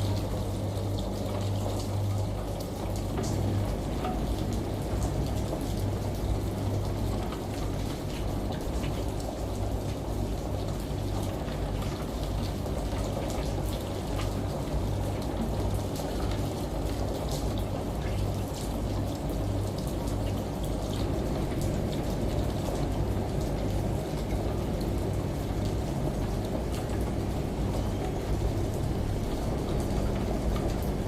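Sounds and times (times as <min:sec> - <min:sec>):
steady rain: 0:00.0 - 0:31.0
washing machine humming: 0:00.0 - 0:31.0.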